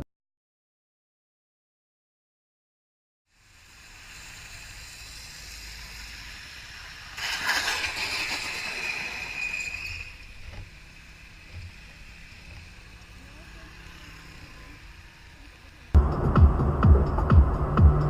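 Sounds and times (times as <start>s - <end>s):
steady high squeal: 3.3s - 16.0s
vehicle road noise: 3.3s - 18.0s.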